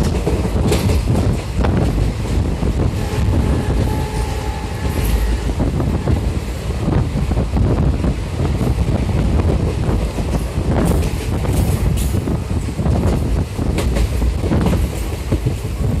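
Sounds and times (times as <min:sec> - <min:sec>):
sharp clicks and clanks: 0:00.0 - 0:02.4
train wheels rumbling on rails: 0:00.0 - 0:16.0.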